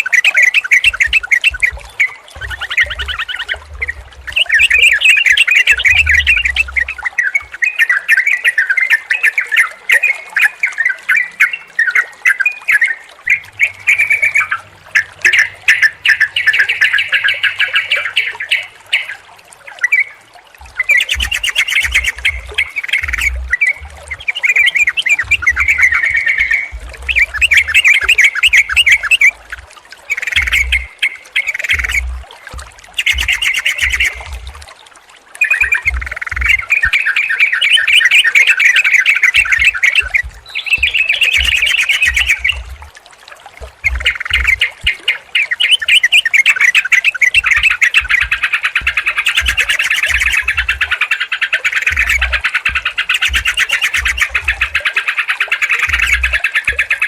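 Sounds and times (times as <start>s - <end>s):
birds chattering: 13.3s - 32.2s, 32.8s - 34.6s, 35.4s - 42.8s, 43.7s - 57.0s.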